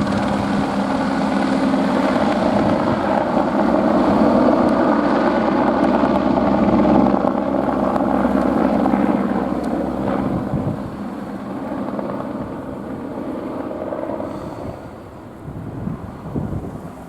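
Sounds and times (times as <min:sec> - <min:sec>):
helicopter flying: 0:00.0 - 0:17.0.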